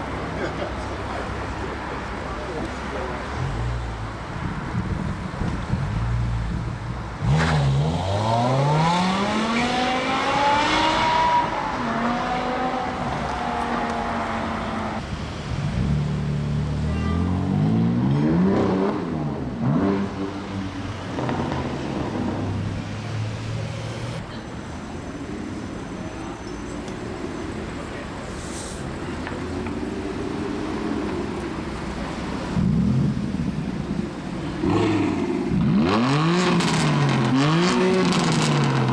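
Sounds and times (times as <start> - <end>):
car engine revving: 7.2 - 15.0, 15.7 - 24.2, 32.2 - 38.9.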